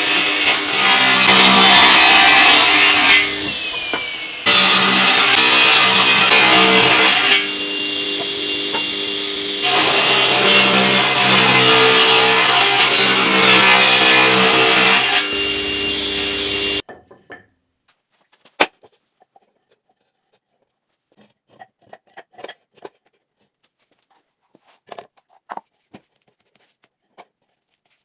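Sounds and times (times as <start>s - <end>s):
power saw cutting wood: 0.0s - 16.8s.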